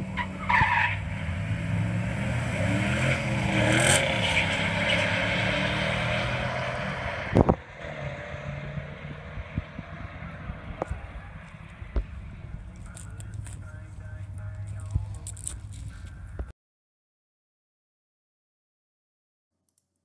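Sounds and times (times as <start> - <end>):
car engines revving hard: 0.0 - 15.8.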